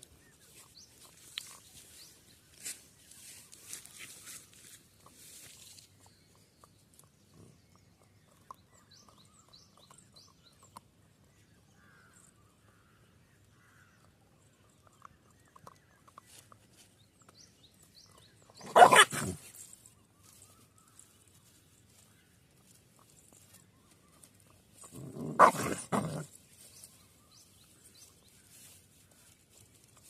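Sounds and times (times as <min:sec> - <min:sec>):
puppy chirping: 0:18.6 - 0:19.4, 0:25.3 - 0:26.2
puppy vocal outburst: 0:18.6 - 0:19.5, 0:24.8 - 0:26.4.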